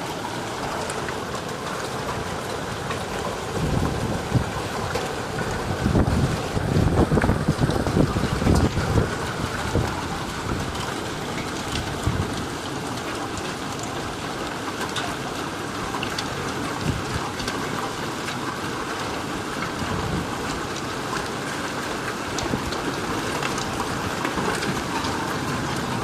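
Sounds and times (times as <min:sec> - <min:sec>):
heavy rain hissing: 0:00.0 - 0:17.4
hailstones ticking: 0:00.0 - 0:26.0
wind gusts on microphone: 0:05.4 - 0:12.4.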